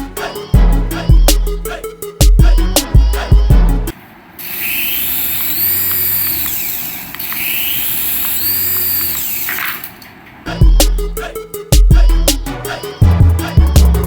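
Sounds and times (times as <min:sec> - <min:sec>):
toy motor whirring: 0:04.4 - 0:10.0.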